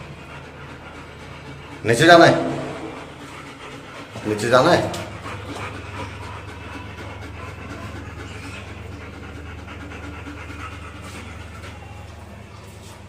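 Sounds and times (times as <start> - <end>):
low hum: 0.0 - 12.9
dog panting: 0.0 - 13.0.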